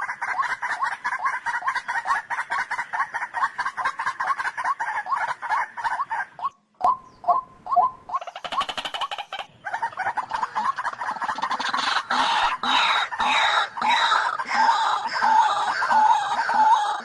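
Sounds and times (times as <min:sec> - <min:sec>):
bird calling harsh repeated notes: 0:06.0 - 0:10.2.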